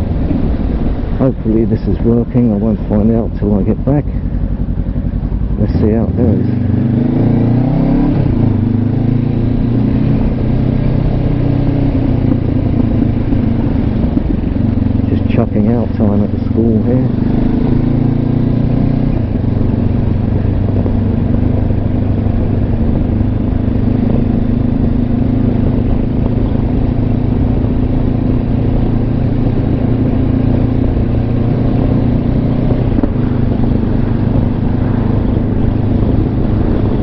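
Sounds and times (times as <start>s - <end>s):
motorcycle engine cruising: 0.0s - 37.0s
wind and road noise: 0.0s - 37.0s.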